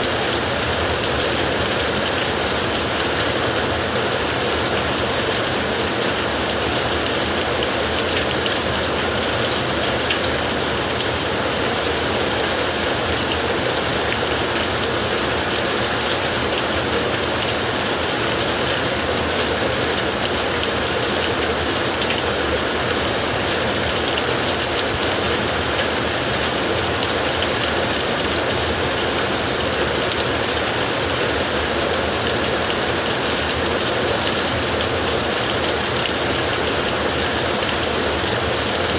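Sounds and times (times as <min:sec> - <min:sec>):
heavy rain on a tin roof: 0:00.0 - 0:38.9.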